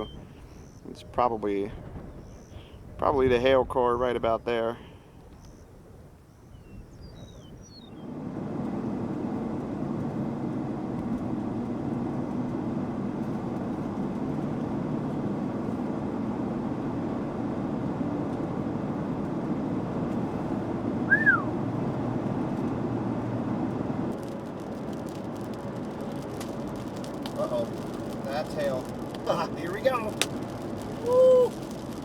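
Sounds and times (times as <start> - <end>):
vehicle road and engine rumble: 0.0 - 32.0
hailstones hitting a vehicle: 23.7 - 32.0.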